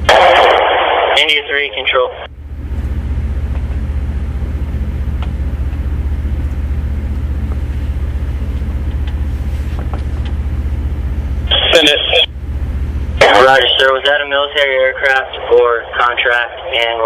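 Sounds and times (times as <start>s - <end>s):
engine running steadily: 2.3s - 15.2s.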